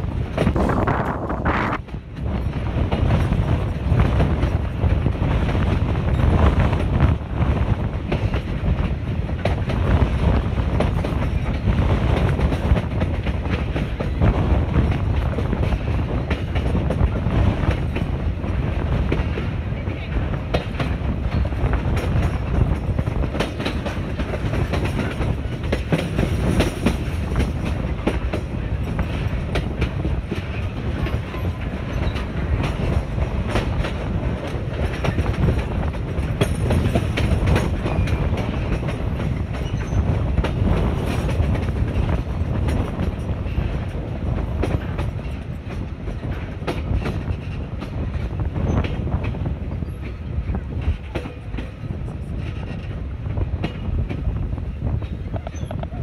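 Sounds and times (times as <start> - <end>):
train carriages rumbling: 0.0 - 56.0
wheels clicking over rails: 20.4 - 54.4.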